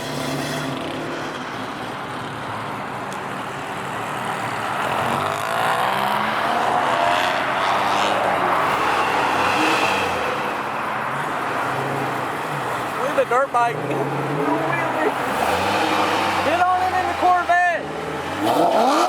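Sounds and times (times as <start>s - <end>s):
car accelerating past: 4.8s - 10.8s, 13.7s - 17.2s, 17.8s - 19.0s.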